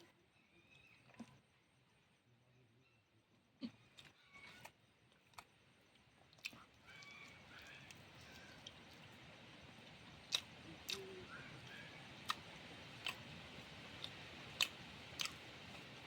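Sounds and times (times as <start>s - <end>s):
sharp eating clicks: 3.7s - 9.1s, 9.8s - 16.0s.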